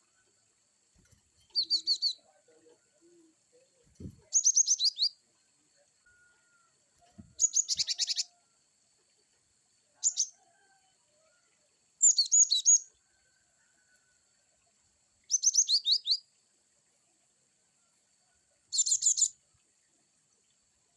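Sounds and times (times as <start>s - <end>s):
bird chirping: 1.0s - 8.4s, 10.0s - 10.4s, 12.0s - 13.0s, 15.2s - 16.3s, 18.7s - 19.4s.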